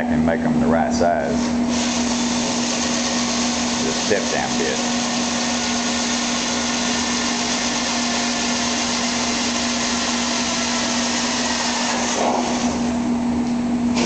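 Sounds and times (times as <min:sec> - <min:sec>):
steady hum: 0:00.0 - 0:14.0
drill drilling steel: 0:01.7 - 0:13.0.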